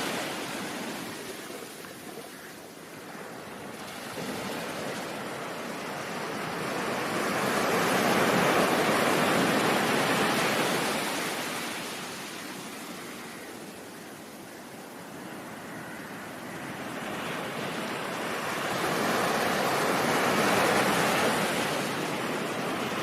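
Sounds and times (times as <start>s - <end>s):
ocean wave rushing: 0.0s - 12.6s.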